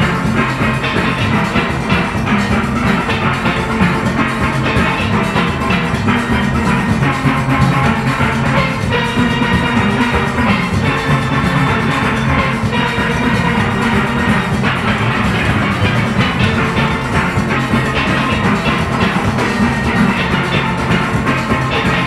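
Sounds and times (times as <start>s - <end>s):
drum and percussion beat: 0.0s - 22.0s
steel pans playing melody: 0.0s - 22.0s.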